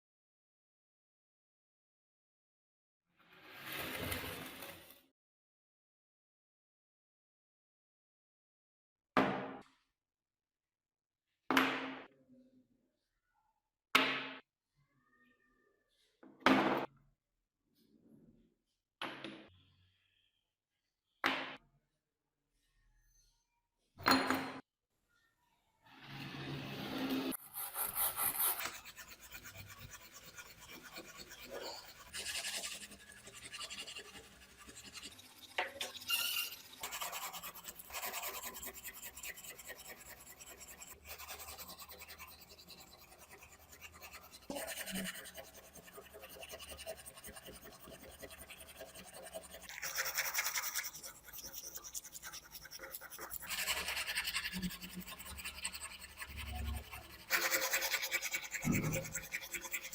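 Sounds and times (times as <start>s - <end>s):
scraping and rubbing strokes: 26.0s - 59.9s.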